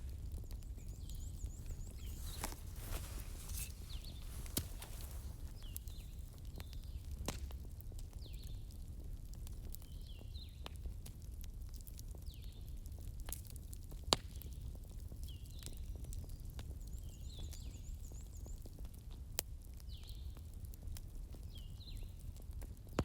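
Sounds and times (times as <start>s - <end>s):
fire rumbling and crackling: 0.0s - 23.0s
sharp pops of fire: 1.0s - 8.4s.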